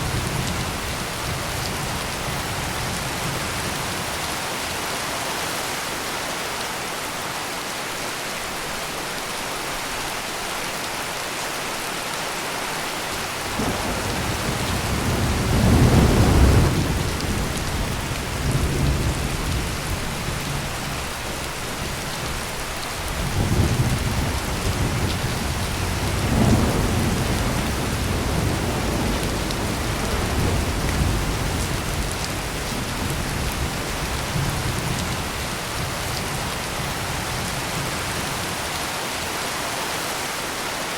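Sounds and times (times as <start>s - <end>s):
heavy rain pouring: 0.0s - 40.9s
thunder rumbling: 13.4s - 21.9s, 23.0s - 38.5s.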